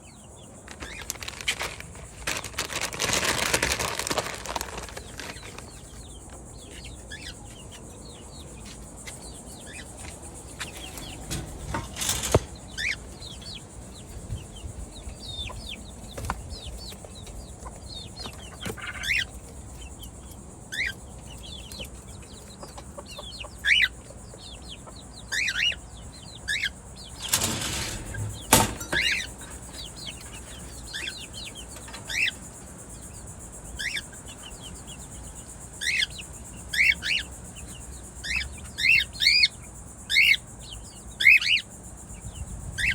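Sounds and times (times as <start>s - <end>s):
birds chirping: 0.0s - 42.9s
wings flapping and rustling: 0.6s - 7.0s, 10.1s - 19.8s, 27.0s - 32.3s.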